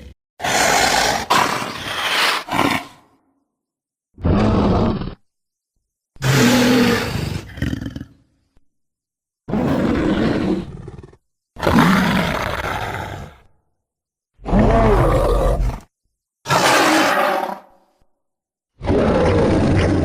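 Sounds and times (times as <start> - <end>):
creature roars: 0.0 - 3.1, 6.2 - 8.2, 9.5 - 13.4, 14.4 - 15.9, 16.5 - 17.7, 18.8 - 20.0.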